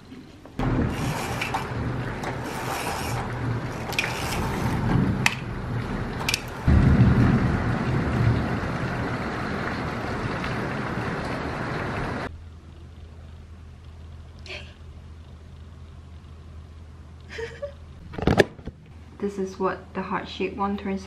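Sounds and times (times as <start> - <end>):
rain falling: 0.6 - 18.0
deep rumble: 3.2 - 17.1.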